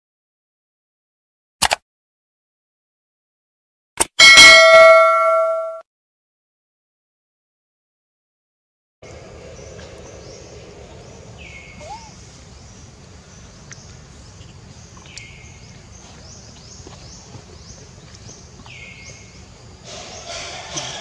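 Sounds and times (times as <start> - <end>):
bird calling: 9.0 - 21.0
low forest background noise: 9.0 - 21.0
faint high chirps: 9.1 - 12.9.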